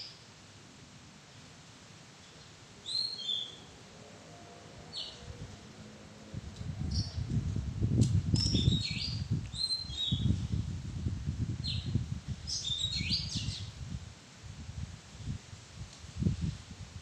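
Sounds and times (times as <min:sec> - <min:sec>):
bird singing whistled notes: 0:02.8 - 0:03.7, 0:08.4 - 0:10.4, 0:11.6 - 0:11.9, 0:12.5 - 0:13.7
low rumble: 0:06.2 - 0:09.5.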